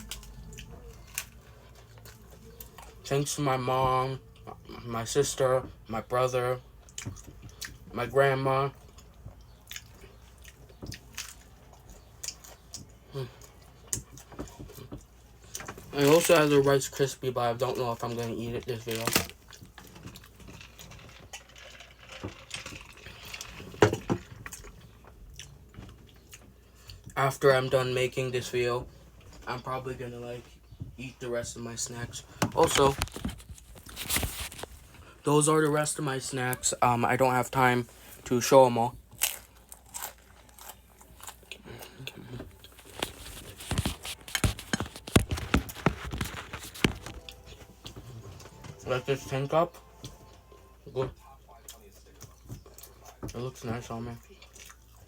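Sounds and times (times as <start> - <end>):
person chewing food: 0.0 - 3.0, 6.6 - 8.0, 8.7 - 27.2, 39.0 - 48.9, 49.7 - 55.0.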